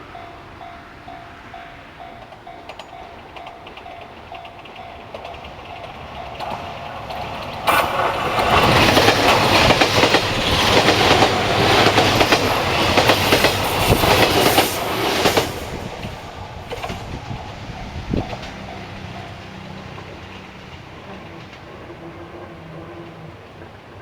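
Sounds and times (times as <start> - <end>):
train rushing rumble: 0.0 - 24.0
wheels clacking over rail joints: 0.0 - 24.0.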